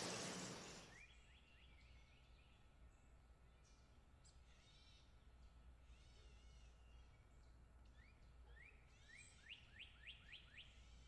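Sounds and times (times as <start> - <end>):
harsh bird call: 0.0 - 1.0.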